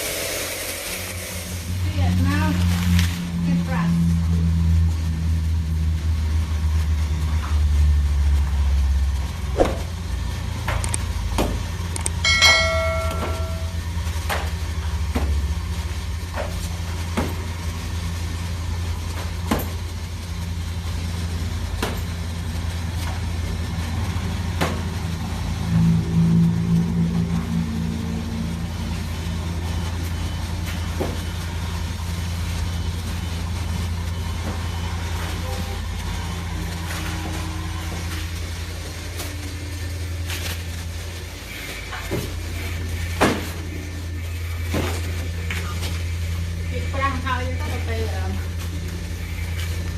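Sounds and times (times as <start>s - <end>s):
low mechanical hum: 0.0s - 49.9s
brief ringing tone: 12.2s - 13.8s.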